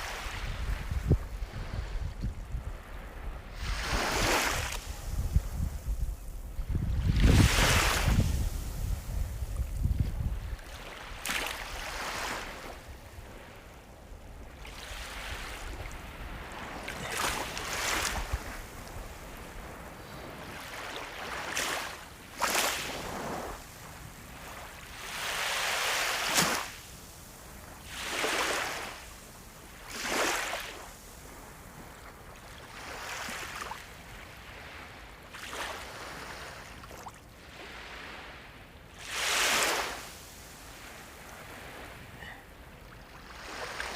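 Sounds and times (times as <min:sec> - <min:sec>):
sea waves breaking: 0:00.0 - 0:26.9, 0:27.8 - 0:29.1, 0:29.8 - 0:31.5, 0:39.0 - 0:43.9.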